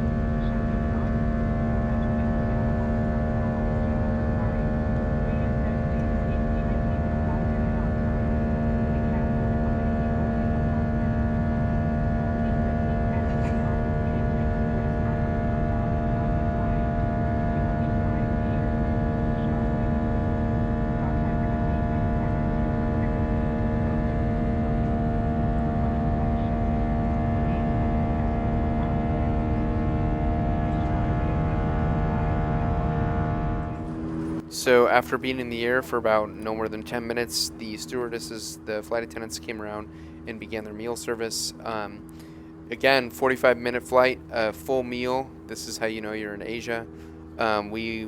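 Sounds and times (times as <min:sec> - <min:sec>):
engine and airflow drone: 0:00.0 - 0:48.0
steady whining tones: 0:00.0 - 0:48.0.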